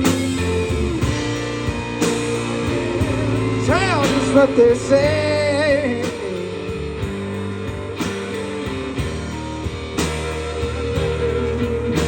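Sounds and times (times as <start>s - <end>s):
guitar chords over bass: 0.0s - 12.0s.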